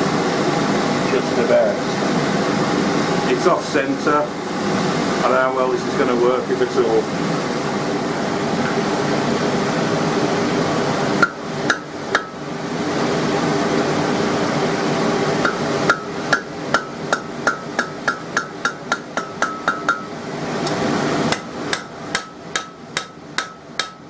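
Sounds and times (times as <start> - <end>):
fan-like hum: 0.0 - 24.0
hammer striking steel on anvil: 11.2 - 12.4, 15.4 - 20.1, 21.3 - 24.0.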